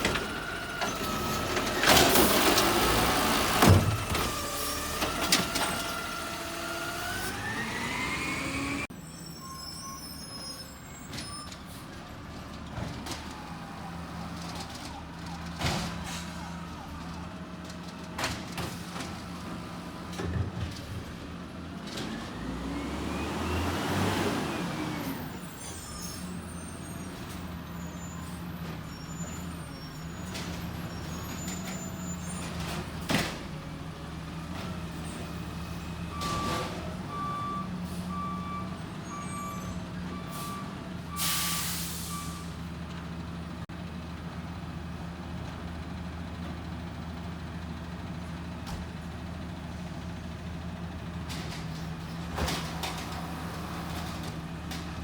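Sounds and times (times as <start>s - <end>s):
air brake hiss: 41.2s - 42.5s.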